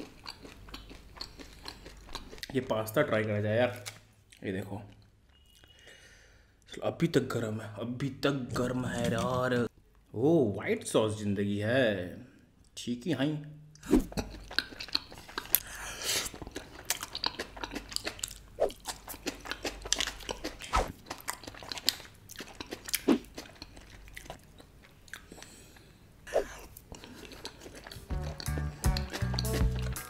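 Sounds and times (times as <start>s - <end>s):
person chewing food: 0.0s - 2.7s, 13.8s - 30.0s
wet mouth clicks and smacks: 27.9s - 30.0s.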